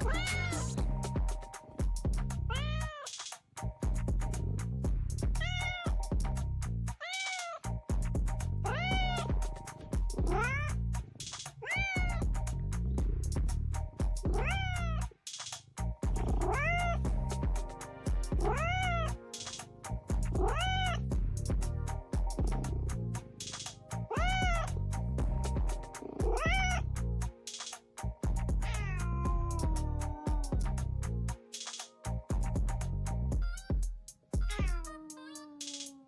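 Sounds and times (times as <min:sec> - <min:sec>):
cat meowing: 0:00.0 - 0:00.8, 0:02.5 - 0:03.1, 0:05.4 - 0:05.9, 0:07.0 - 0:07.6, 0:08.6 - 0:09.3, 0:10.2 - 0:10.7, 0:11.6 - 0:12.2, 0:14.3 - 0:15.0, 0:16.3 - 0:17.0, 0:18.4 - 0:19.1, 0:20.4 - 0:21.0, 0:24.1 - 0:24.7, 0:26.1 - 0:26.8, 0:28.7 - 0:30.6, 0:34.5 - 0:36.0
background music with beat: 0:00.0 - 0:36.0.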